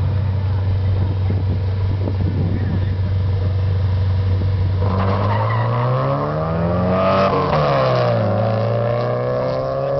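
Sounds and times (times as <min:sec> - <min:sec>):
car accelerating past: 0:04.8 - 0:09.9.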